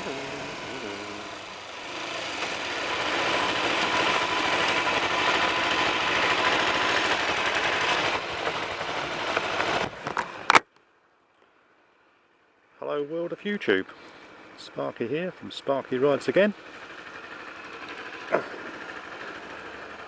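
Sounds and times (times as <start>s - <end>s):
wind and road noise rushing: 0.0s - 10.6s.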